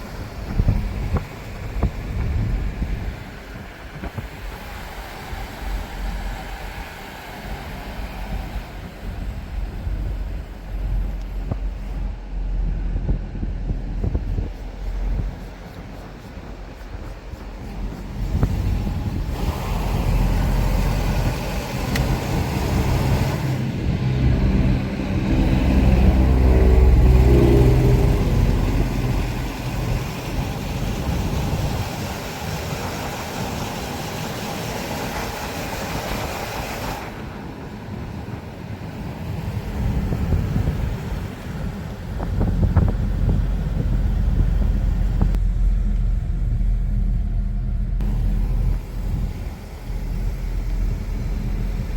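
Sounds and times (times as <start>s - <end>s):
car driving on road: 0.0s - 51.9s.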